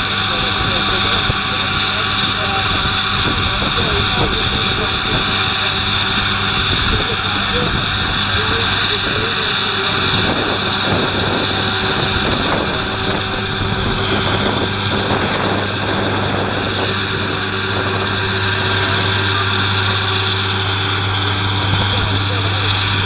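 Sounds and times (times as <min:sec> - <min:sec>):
diesel engine hum: 0:00.0 - 0:23.0
mower high whine: 0:00.0 - 0:23.0.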